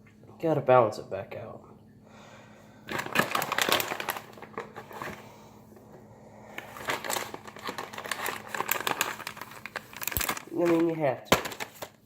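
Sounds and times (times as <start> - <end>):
food packaging crinkling: 2.9 - 5.4, 6.5 - 12.0.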